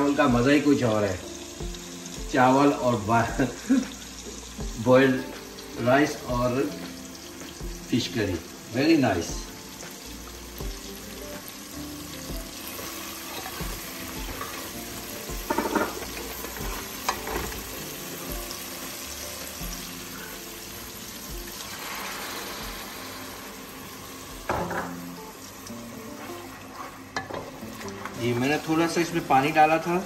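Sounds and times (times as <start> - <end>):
food sizzling in oil: 0.0 - 30.0
spatula scraping a pan: 15.4 - 17.6, 26.0 - 28.2.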